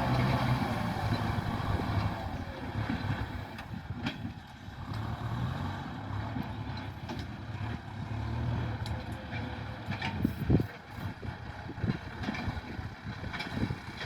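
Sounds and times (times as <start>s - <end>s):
tractor diesel engine running: 0.0s - 14.0s
light clatter: 6.4s - 7.8s, 8.8s - 14.0s.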